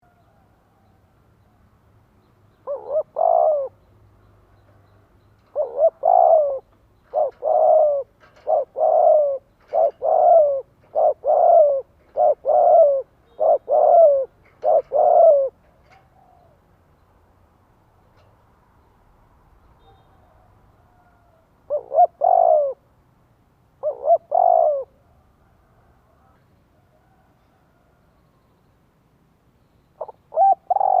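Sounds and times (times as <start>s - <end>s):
dove cooing: 2.6s - 3.8s, 5.4s - 16.6s, 19.8s - 22.9s, 23.8s - 26.4s, 30.0s - 31.0s.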